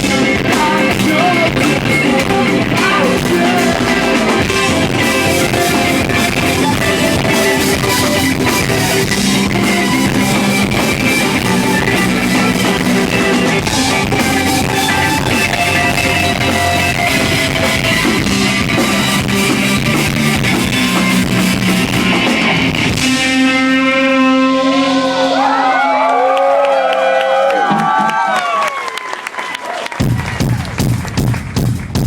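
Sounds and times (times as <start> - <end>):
guitars ringing held chord: 0.0 - 25.6
live rock band playing: 0.0 - 26.1.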